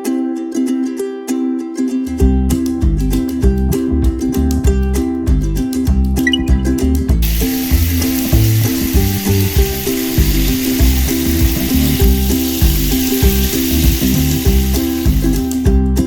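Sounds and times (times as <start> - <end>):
background music with beat: 2.2 - 16.0
spraying hiss: 7.2 - 15.8.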